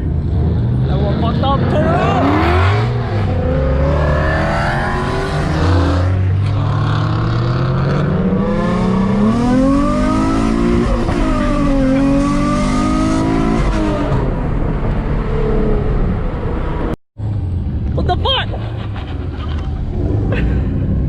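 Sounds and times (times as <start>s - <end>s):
car engine revving hard: 0.3s - 14.3s.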